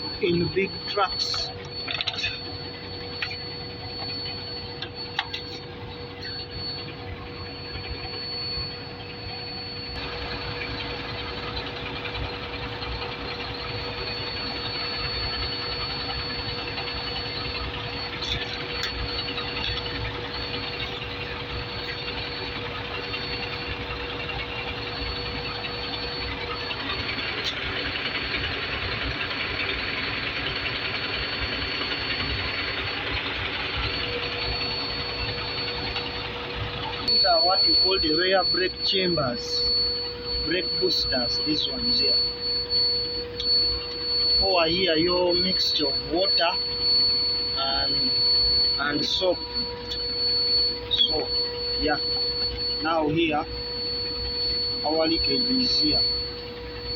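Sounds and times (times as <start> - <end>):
truck engine idling: 0.0 - 56.9.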